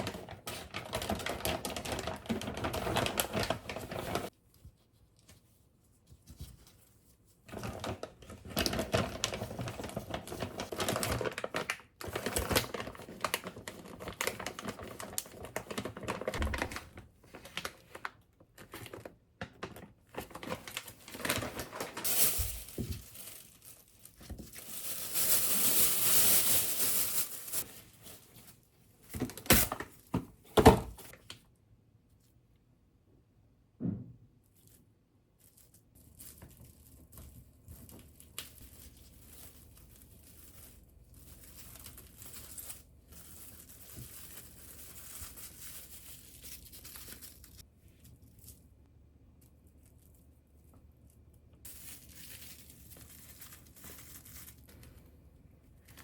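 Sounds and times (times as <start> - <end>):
crinkling rustles: 0.0 - 31.4, 34.5 - 48.7, 49.3 - 56.0.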